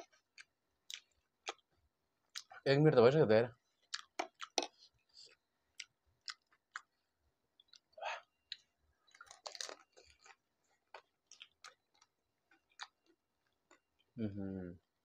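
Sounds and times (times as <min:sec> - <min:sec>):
crisp shells crunching being chewed: 0:03.9 - 0:05.4, 0:08.5 - 0:13.8.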